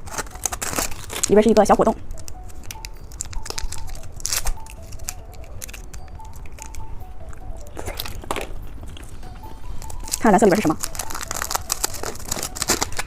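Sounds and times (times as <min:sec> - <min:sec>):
candy wrapper crinkling and tearing: 0:00.0 - 0:13.0
soft background music: 0:00.0 - 0:13.0.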